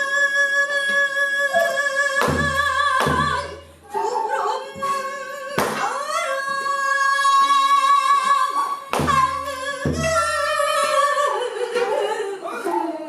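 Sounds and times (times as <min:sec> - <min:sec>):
person singing long held notes: 0:00.0 - 0:13.0
traditional accompaniment: 0:00.8 - 0:04.2, 0:08.9 - 0:11.0.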